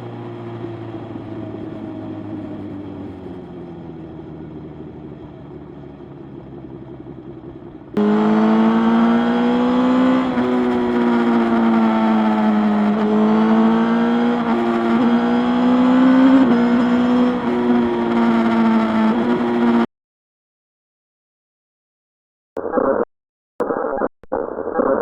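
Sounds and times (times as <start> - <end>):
motorcycle engine: 0.0 - 19.9.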